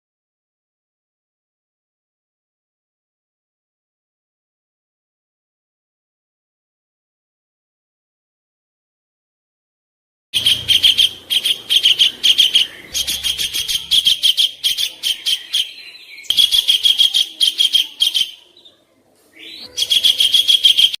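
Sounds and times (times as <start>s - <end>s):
songbird harsh chattering song: 10.4s - 21.0s.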